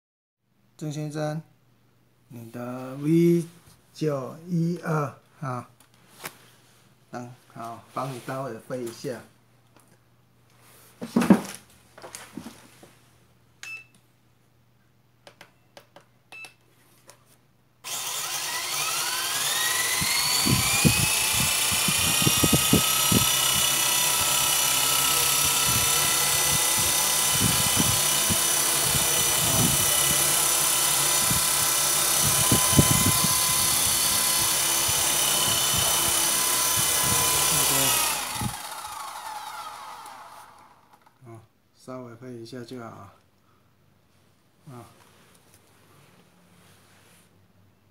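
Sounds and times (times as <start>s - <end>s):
electric motor whine: 17.9s - 41.0s.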